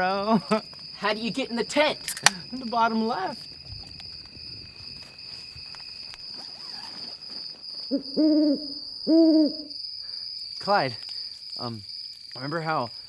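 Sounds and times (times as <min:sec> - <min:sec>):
crickets chirring: 0:00.0 - 0:13.0
owl hooting: 0:07.9 - 0:09.8.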